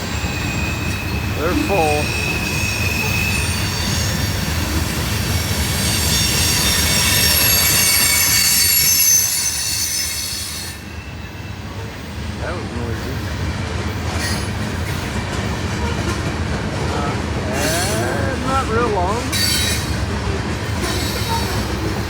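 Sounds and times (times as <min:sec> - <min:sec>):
train wheels squealing: 0:00.0 - 0:12.2, 0:14.0 - 0:16.2, 0:19.3 - 0:22.0
freight train rumble: 0:00.0 - 0:22.0.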